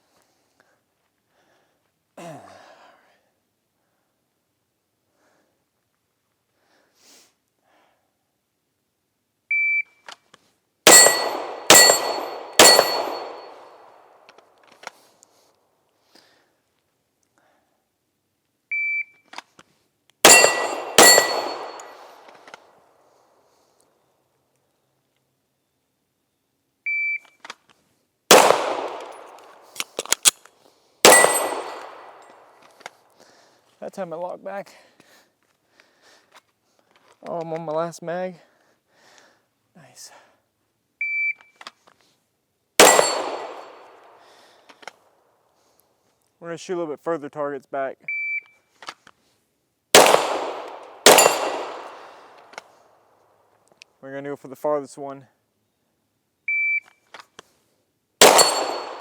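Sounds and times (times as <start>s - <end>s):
handgun shots with metallic ring: 10.9s - 14.1s, 20.2s - 22.4s, 28.3s - 30.4s, 31.0s - 32.5s, 42.8s - 44.2s, 50.0s - 52.5s, 58.2s - 59.0s
sharp clicks: 28.3s - 30.5s.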